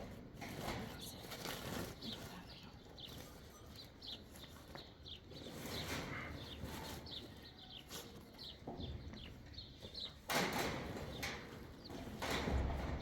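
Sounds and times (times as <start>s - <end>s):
small birds chirping: 1.0s - 10.3s.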